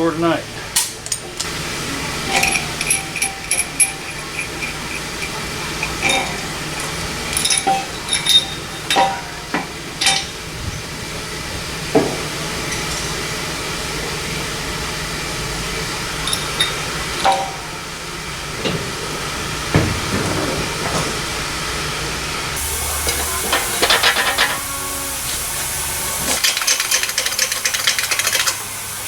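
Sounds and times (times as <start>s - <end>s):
tools and metal parts clinking: 0.7s - 10.4s, 12.0s - 13.3s, 16.2s - 17.7s, 22.6s - 25.3s, 26.2s - 28.7s.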